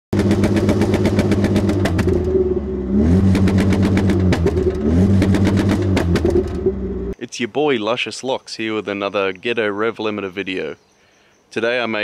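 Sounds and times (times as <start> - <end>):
engine on rev limiter: 0.1 - 7.2
exhaust crackles and pops: 0.1 - 7.2.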